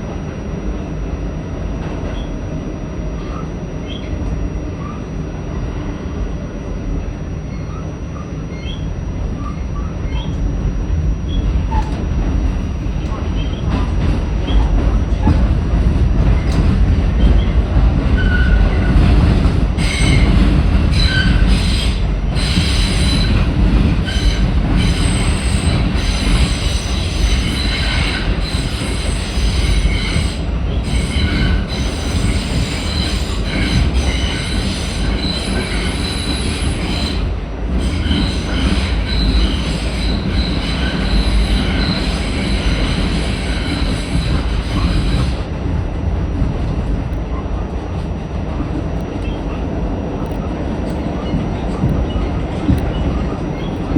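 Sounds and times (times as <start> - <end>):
train rumbling: 0.0 - 53.9
high-pitched wheel squeals: 19.8 - 45.4.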